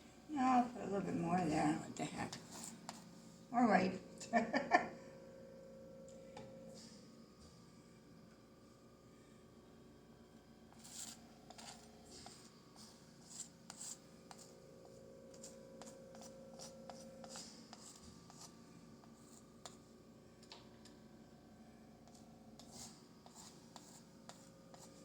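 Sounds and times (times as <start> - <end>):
faint steady hum: 0.0 - 25.0
palette knife scraping canvas: 10.8 - 14.5.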